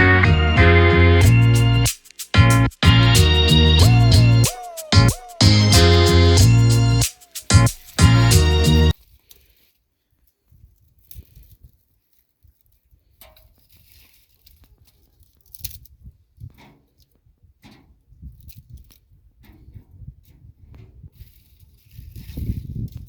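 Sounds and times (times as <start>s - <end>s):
loud background music: 0.0s - 8.9s.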